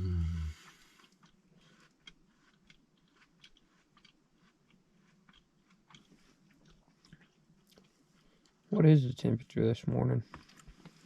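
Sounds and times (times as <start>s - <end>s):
faint small clicks and crunches: 0.9s - 8.6s, 10.2s - 11.0s.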